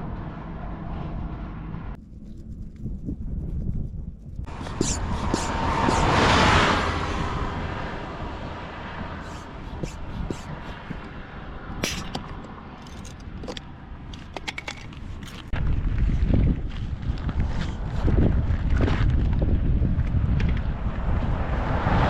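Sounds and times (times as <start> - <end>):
road vehicle passing: 0.0 - 2.0, 4.4 - 15.5, 19.5 - 22.0
wind noise: 0.0 - 22.0.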